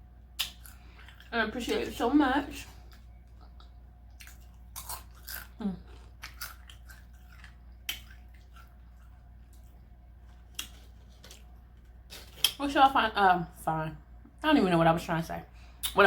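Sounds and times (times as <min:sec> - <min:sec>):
crunchy taco shell chewing: 0:02.8 - 0:12.6.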